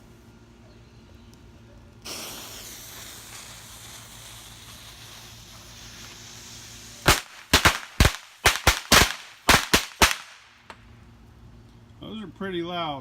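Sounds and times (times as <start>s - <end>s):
burning fuse hissing: 2.0s - 10.3s.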